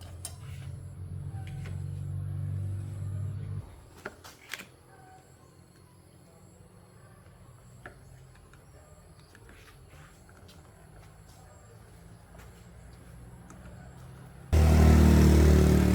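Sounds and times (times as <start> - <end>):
low machine hum: 14.6 - 15.9.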